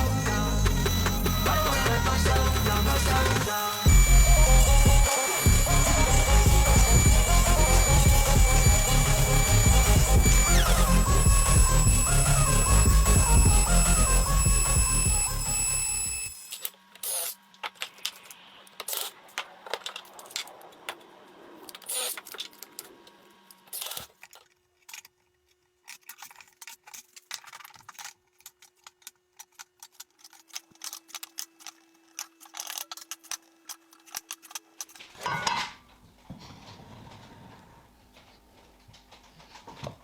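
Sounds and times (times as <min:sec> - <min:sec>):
clicks of small hard objects: 0:23.7 - 0:35.3.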